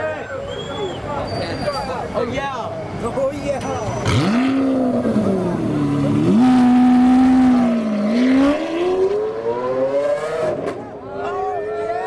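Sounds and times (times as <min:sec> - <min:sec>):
sports car engine at high revs: 0:03.9 - 0:10.8.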